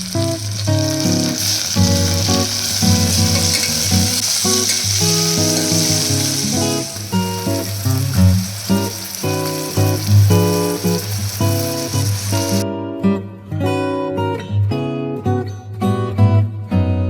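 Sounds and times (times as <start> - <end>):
food sizzling in hot oil: 0.0 - 12.6
background music: 0.0 - 13.9.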